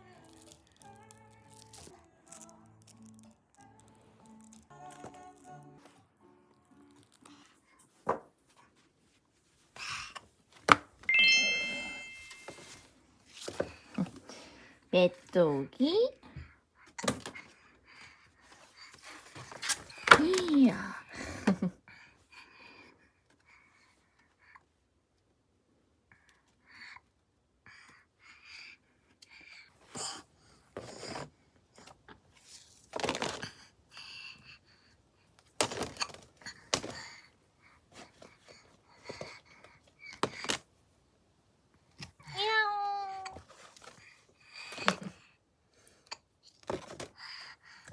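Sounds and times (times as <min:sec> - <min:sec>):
rising bell-like chime: 0:11.1 - 0:12.8.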